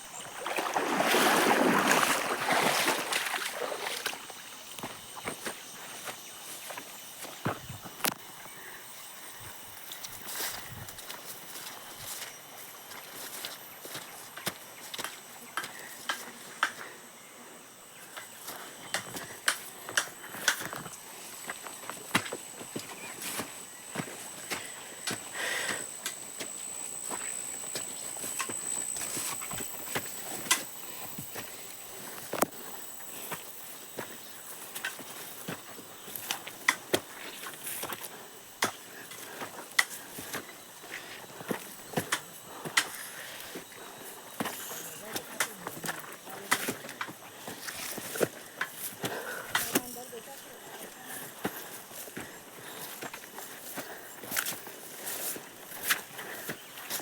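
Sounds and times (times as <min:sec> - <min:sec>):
footsteps through forest undergrowth: 0:00.4 - 0:17.0, 0:17.9 - 0:57.0.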